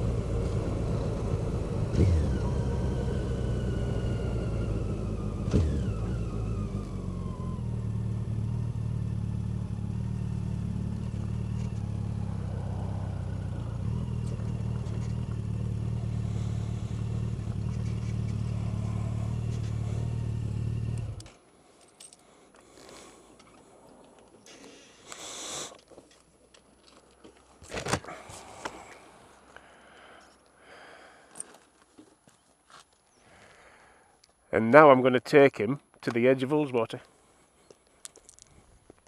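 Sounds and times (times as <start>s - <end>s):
vehicle engine running: 0.0s - 21.4s.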